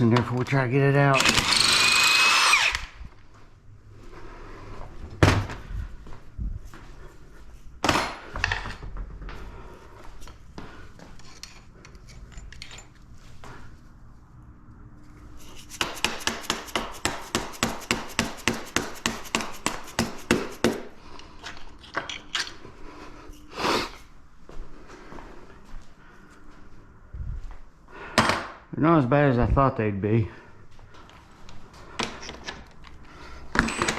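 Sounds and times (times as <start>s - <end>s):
rapid ratchet clicks: 1.2s - 2.9s.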